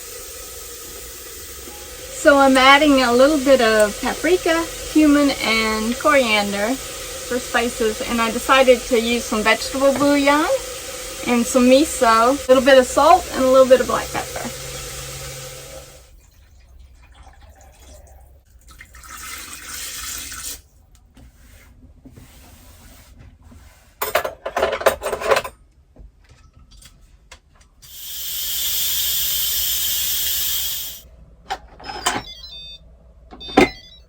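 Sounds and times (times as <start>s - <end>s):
hissing rush: 2.0s - 15.6s
utensils clattering: 24.0s - 25.6s.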